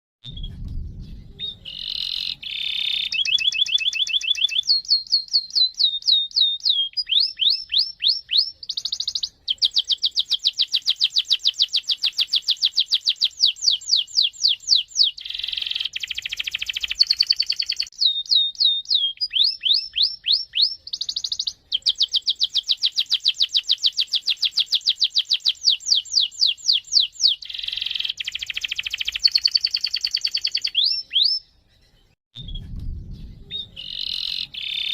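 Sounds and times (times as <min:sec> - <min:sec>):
canary singing: 0:01.3 - 0:32.2, 0:33.4 - 0:34.9.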